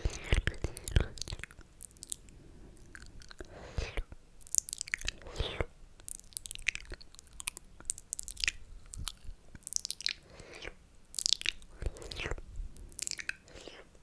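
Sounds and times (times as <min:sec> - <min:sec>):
lip and tongue clicks: 0:00.0 - 0:14.0
wet mouth slurping and sucking: 0:03.0 - 0:06.9, 0:08.2 - 0:14.0.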